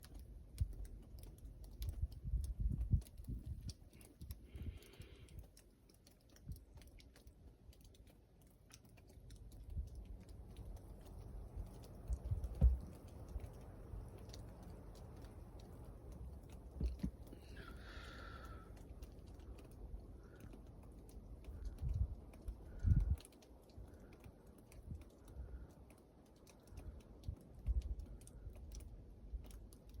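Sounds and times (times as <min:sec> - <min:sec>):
sharp ticks and clicks: 0:00.0 - 0:30.0
wind gusting on microphone: 0:01.8 - 0:04.7, 0:21.6 - 0:23.3.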